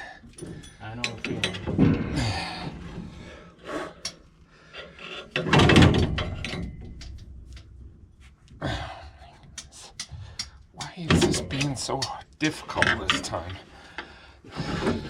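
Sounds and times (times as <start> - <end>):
parts knocking: 0.2 - 3.4, 9.5 - 13.6.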